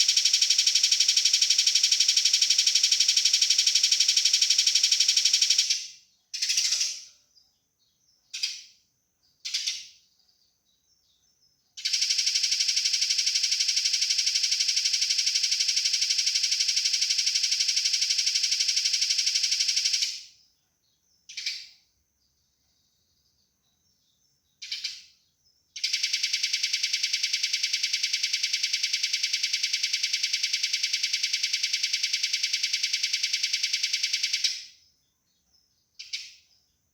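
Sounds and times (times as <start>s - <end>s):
sparrows chirping rattle: 0.0s - 7.2s, 9.4s - 14.9s, 23.1s - 31.8s, 35.4s - 36.7s
single bird chirps: 23.7s - 25.4s.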